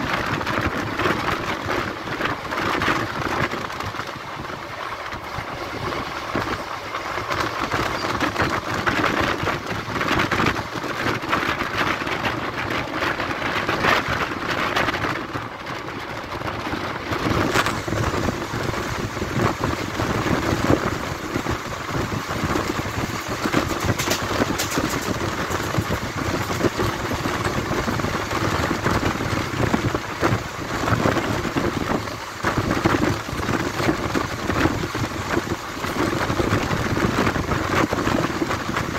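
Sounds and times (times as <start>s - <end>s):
train wheels rumbling on rails: 0.0s - 38.9s
wind rushing: 17.0s - 38.9s
sharp wheel clacks: 23.4s - 26.7s.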